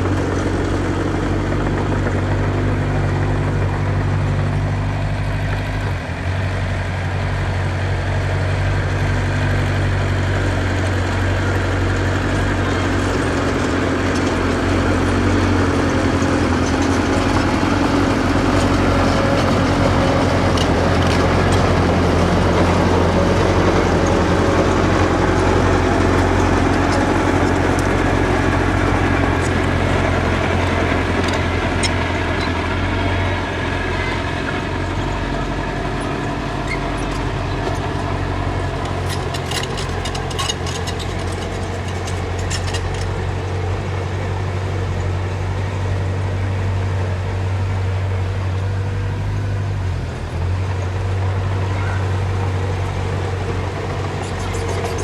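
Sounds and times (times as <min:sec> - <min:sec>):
diesel engine droning: 0:00.0 - 0:55.0
metallic clanks and squeaks: 0:12.7 - 0:43.6, 0:51.6 - 0:55.0.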